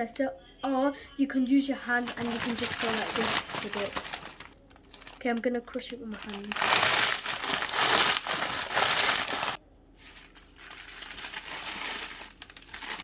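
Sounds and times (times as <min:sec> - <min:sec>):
tortilla chips crushed by hand: 0:06.2 - 0:09.6, 0:10.6 - 0:13.0.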